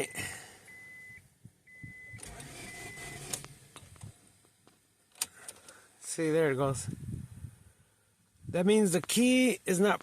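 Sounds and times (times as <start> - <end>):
electronic warning chime beeping: 0.0 - 3.3.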